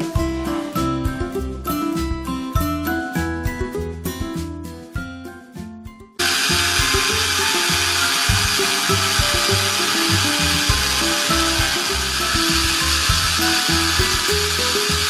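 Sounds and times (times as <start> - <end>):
background music: 0.0 - 15.0
toy appliance whirring: 6.2 - 15.0.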